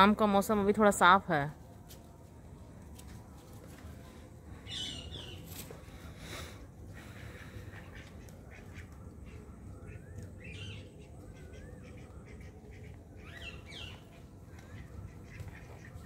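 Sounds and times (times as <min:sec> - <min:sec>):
birds squawking and whistling: 0:04.6 - 0:05.6, 0:07.0 - 0:16.0.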